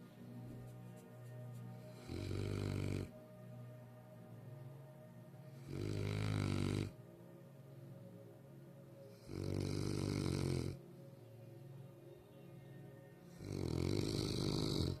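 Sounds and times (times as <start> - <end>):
dog snoring: 1.9 - 3.1, 5.6 - 7.0, 9.1 - 10.8, 13.4 - 15.0.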